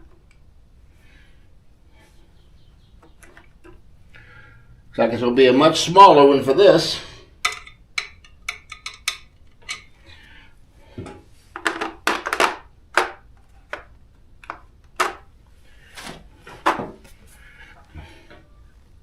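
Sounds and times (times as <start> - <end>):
metal sockets clinking: 7.4 - 9.9.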